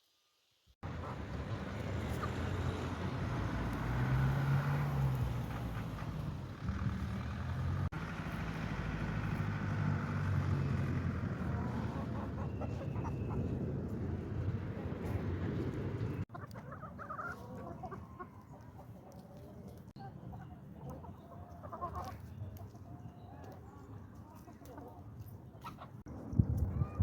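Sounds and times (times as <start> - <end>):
low engine rumble: 0.8 - 16.3.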